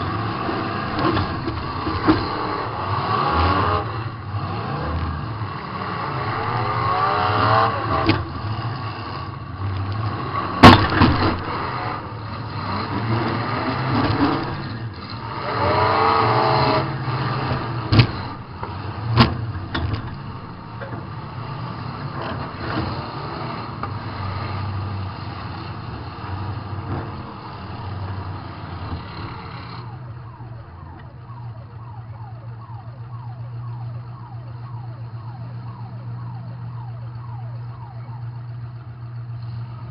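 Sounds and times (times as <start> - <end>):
car engine revving: 0.0 - 31.9
car-to-car crash bangs: 10.6 - 11.8.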